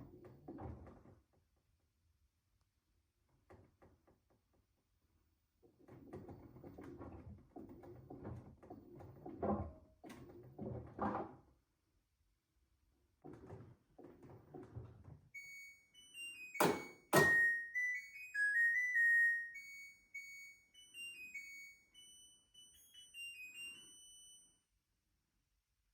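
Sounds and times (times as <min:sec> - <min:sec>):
washing machine beeping melody: 0:15.4 - 0:24.6.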